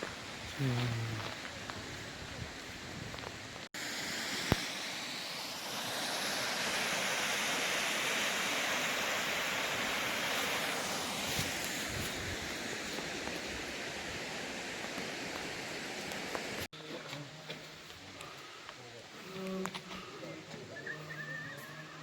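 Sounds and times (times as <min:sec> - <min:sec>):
stream water rushing: 0:03.8 - 0:16.7.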